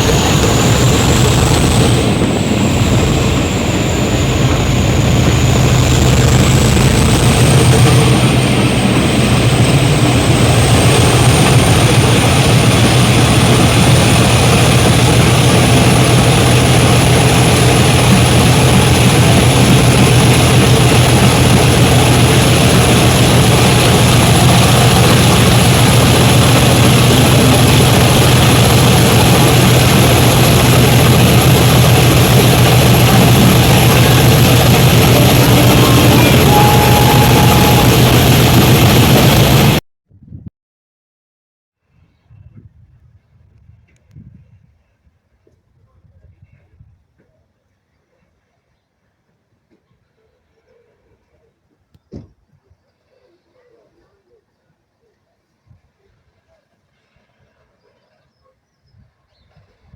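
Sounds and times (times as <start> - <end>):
diesel locomotive engine droning: 0.0 - 39.8
thin high whine rising: 0.0 - 39.8.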